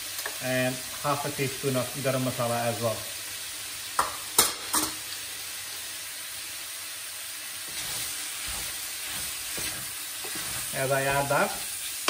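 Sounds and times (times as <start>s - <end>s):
meat and onions sizzling in a pan: 0.0s - 12.0s
wooden spoon scraping a pan: 7.6s - 11.9s.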